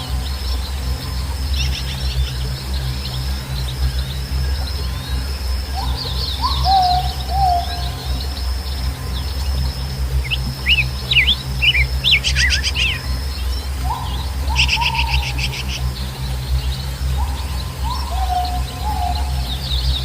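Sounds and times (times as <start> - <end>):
birds chirping: 0.0 - 20.0
steady high-pitched whine: 0.0 - 20.0
steady low rumble: 0.0 - 20.0
bird rattling trills: 9.2 - 20.0.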